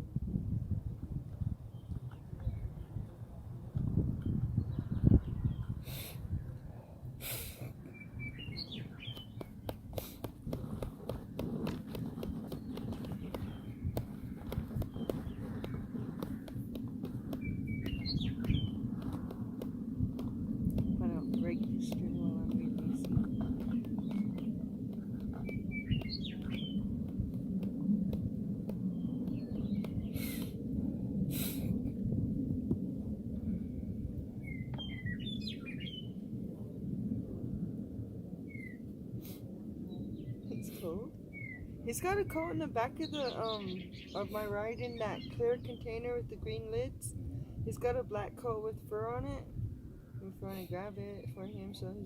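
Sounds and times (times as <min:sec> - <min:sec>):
low steady rumble: 0:00.0 - 0:52.0
bird chirping: 0:07.9 - 0:09.8, 0:12.3 - 0:16.5, 0:17.2 - 0:18.8, 0:20.8 - 0:24.6, 0:25.2 - 0:26.9, 0:34.4 - 0:36.1
irregular clicks and taps: 0:09.1 - 0:30.0.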